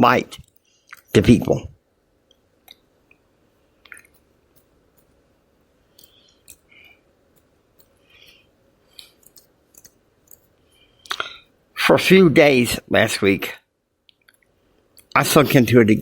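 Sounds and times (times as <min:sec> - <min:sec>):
soft breath noises: 0:05.8 - 0:09.4.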